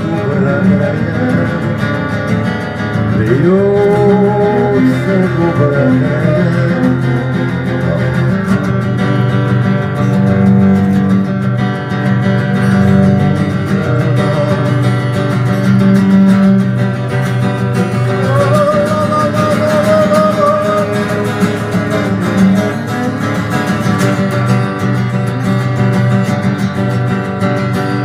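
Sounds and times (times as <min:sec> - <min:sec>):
steady low bass line: 0:00.0 - 0:27.7
acoustic guitar playing: 0:00.0 - 0:28.0.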